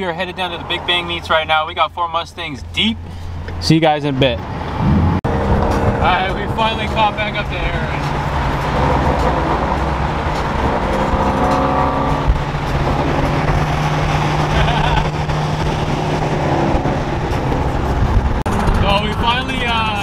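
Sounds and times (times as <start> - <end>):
road and tyre noise: 0.0 - 20.0
car engine at speed: 2.6 - 20.0.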